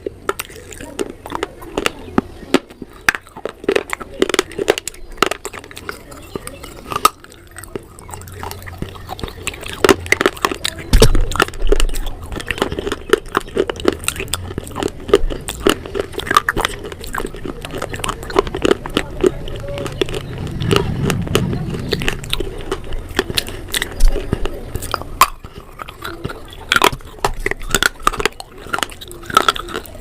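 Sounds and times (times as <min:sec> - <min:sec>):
crunchy chewing: 0:00.0 - 0:30.0.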